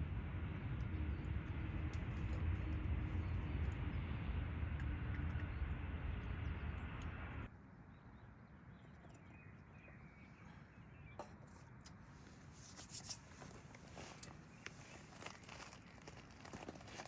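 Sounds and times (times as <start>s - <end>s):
rushing noise with low rumble: 0.0s - 7.5s.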